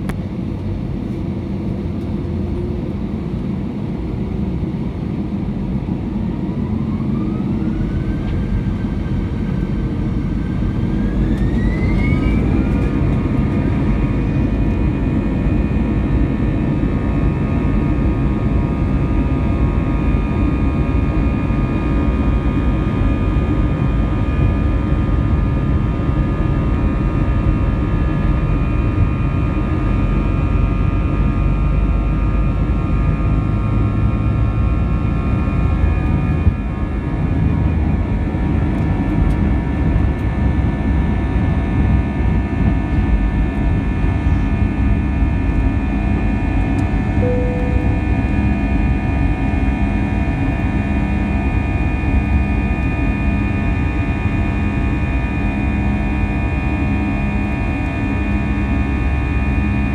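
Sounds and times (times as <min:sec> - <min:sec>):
low engine rumble: 0:00.0 - 0:20.9, 0:42.0 - 0:59.2
jet engine whine: 0:00.0 - 0:59.9.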